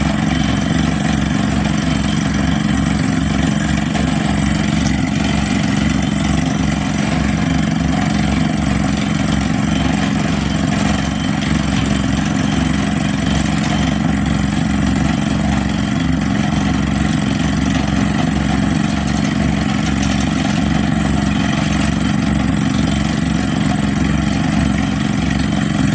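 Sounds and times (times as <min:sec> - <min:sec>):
heavy machine engine running: 0:00.0 - 0:25.9.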